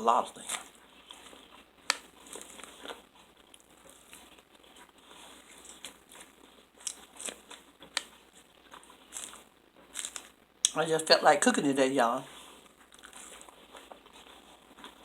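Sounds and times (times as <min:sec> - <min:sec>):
person chewing and crunching food: 0:00.0 - 0:10.8, 0:12.2 - 0:15.0.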